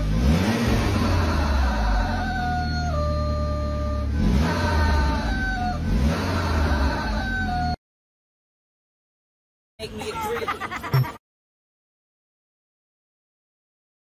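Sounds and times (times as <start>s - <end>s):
car engine rumbling and revving: 0.0s - 7.8s.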